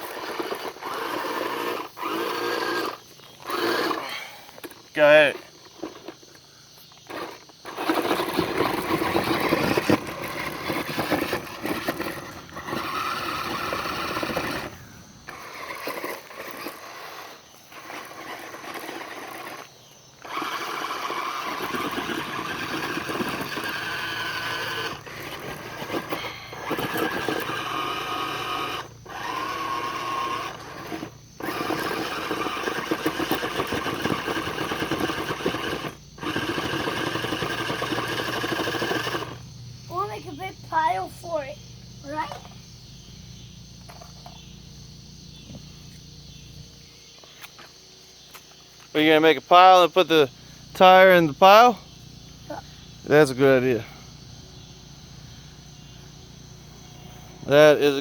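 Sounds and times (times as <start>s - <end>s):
electric motor whining: 0.0s - 40.4s, 56.5s - 58.0s
tire spinning in gravel: 0.0s - 42.4s.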